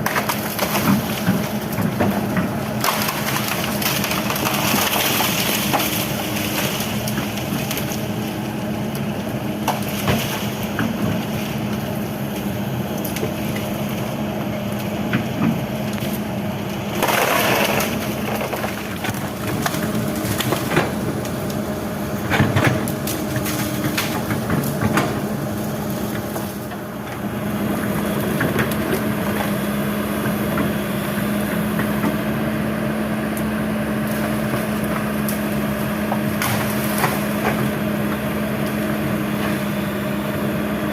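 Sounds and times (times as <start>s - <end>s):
wood cracking and snapping: 0.0s - 11.9s, 14.8s - 26.9s, 33.4s - 38.8s
excavator diesel engine running: 0.0s - 40.9s.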